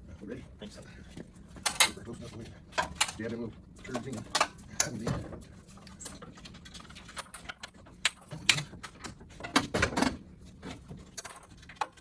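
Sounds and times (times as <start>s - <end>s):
hand tools clicking and clattering: 1.6s - 5.1s.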